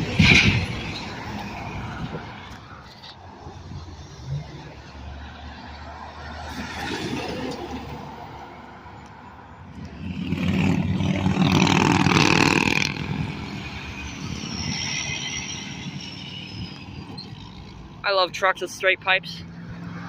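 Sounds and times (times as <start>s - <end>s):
heavy truck driving past: 3.4s - 18.0s.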